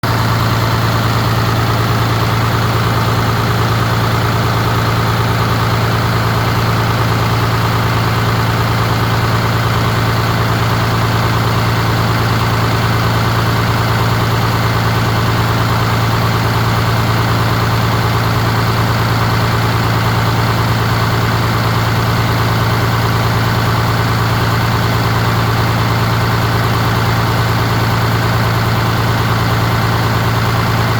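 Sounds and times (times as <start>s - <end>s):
diesel engine idling: 0.0s - 30.9s.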